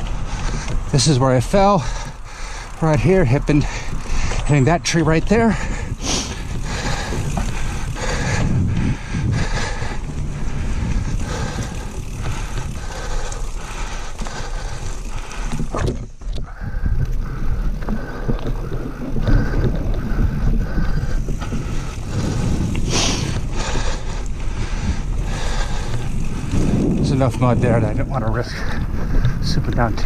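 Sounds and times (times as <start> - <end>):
bike knocking and rattling: 0.0 - 30.0
bike tyres rumbling on dirt: 0.0 - 30.0.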